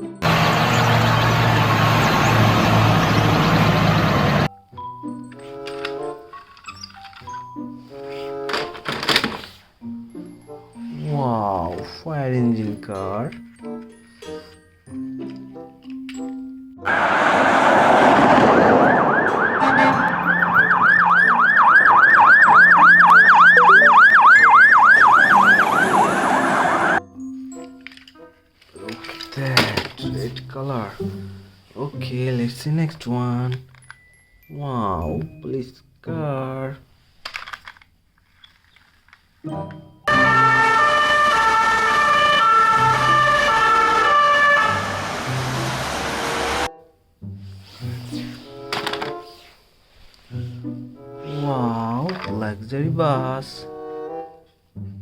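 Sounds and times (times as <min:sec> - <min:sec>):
toy electronic siren wailing: 0:18.4 - 0:27.0, 0:40.1 - 0:45.4.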